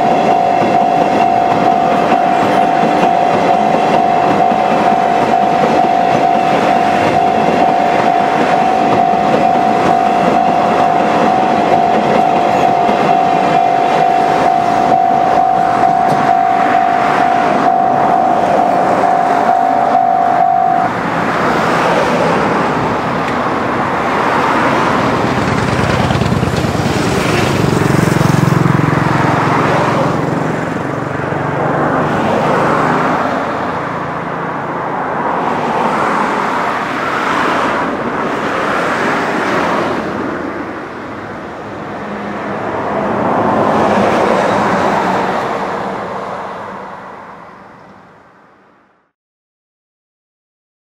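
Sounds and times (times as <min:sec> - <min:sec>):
steady tone: 0:00.0 - 0:21.6
train wheels rumbling on rail: 0:00.0 - 0:46.7.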